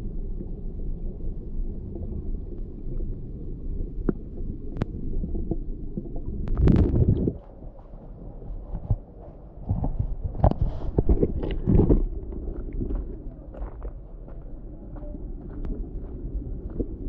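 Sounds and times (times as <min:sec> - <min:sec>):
muffled underwater river rumble: 0:00.0 - 0:17.0
water splashing: 0:06.5 - 0:07.6.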